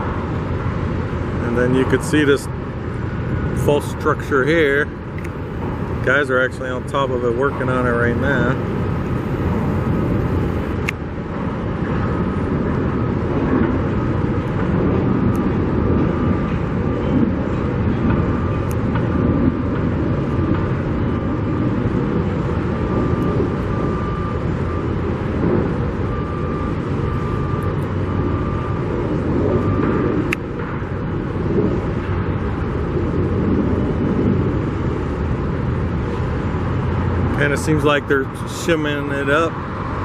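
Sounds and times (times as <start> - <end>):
construction machinery rumble: 0.0 - 14.9
traffic: 0.0 - 40.0
faint beeping: 6.0 - 10.8.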